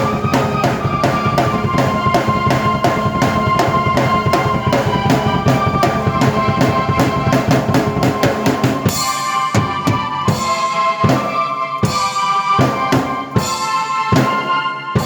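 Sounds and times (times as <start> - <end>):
bass: 0.0 - 9.0
drum kit playing a groove: 0.0 - 15.0
sustained keyboard chords: 0.0 - 15.0
cymbal crash: 0.1 - 10.8.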